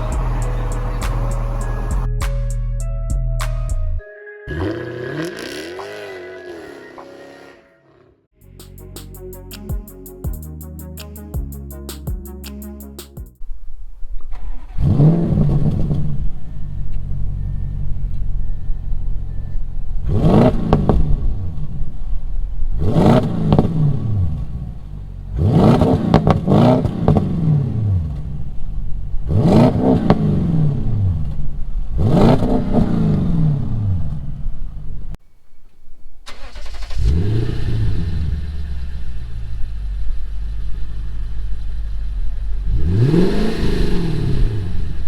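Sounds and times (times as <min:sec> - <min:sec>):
engine idling and revving: 0:00.0 - 0:02.3, 0:04.5 - 0:07.1, 0:14.1 - 0:35.2, 0:36.3 - 0:45.0.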